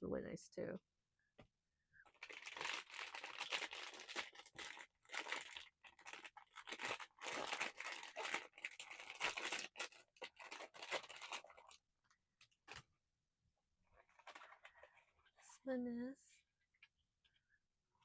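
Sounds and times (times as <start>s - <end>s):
plastic wrapping crinkling and tearing: 2.1s - 11.8s, 14.0s - 15.4s.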